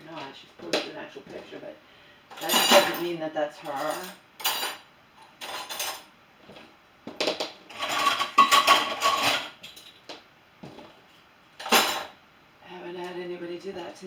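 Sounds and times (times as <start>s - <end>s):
dishes and cutlery clattering: 2.3s - 3.1s, 3.7s - 6.1s, 7.7s - 10.0s, 11.6s - 12.2s.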